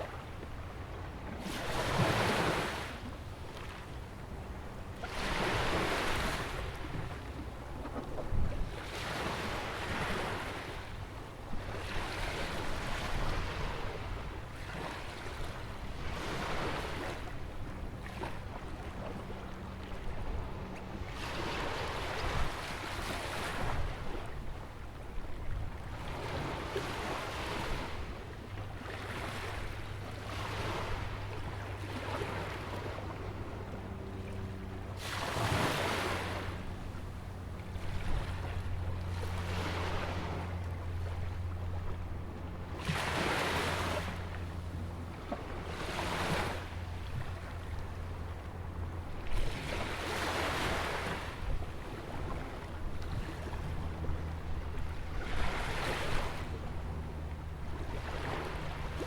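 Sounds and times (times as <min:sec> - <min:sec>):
ocean waves breaking: 0:00.0 - 0:59.0
wind rumble on microphone: 0:00.0 - 0:59.0.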